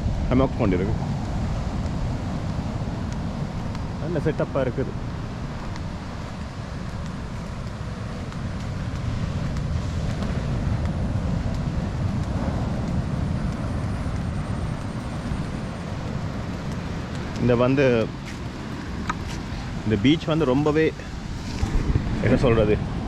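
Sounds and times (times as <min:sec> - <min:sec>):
surf rushing: 0:00.0 - 0:23.0
wind buffeting microphone: 0:00.0 - 0:23.0.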